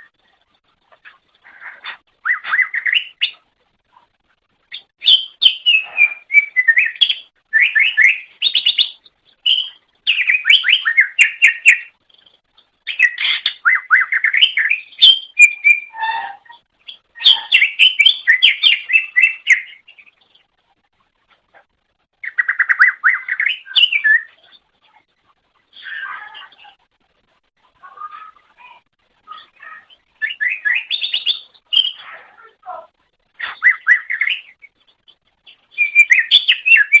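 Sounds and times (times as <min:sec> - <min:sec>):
bird singing chirps and whistles: 0:02.2 - 0:03.4, 0:04.7 - 0:12.0, 0:12.9 - 0:20.1, 0:22.2 - 0:24.4, 0:29.3 - 0:32.2, 0:33.4 - 0:37.0.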